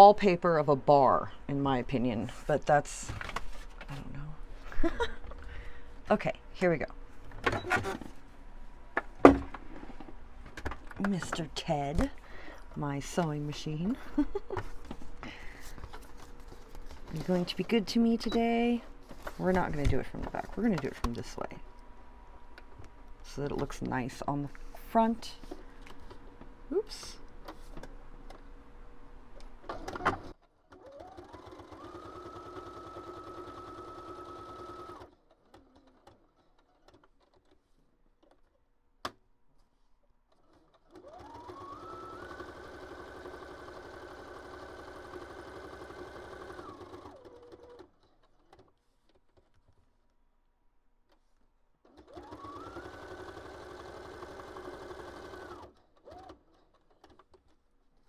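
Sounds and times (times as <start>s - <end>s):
sewing machine whirring: 29.7s - 37.5s, 40.4s - 48.6s, 51.8s - 57.5s.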